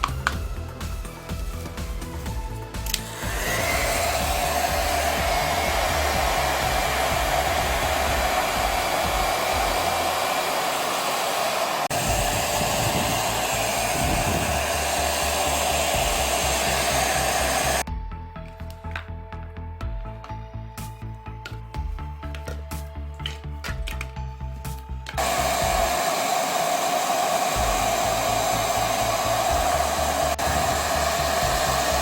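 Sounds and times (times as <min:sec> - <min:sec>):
small electric motor whining: 0:00.0 - 0:17.8, 0:25.2 - 0:32.0.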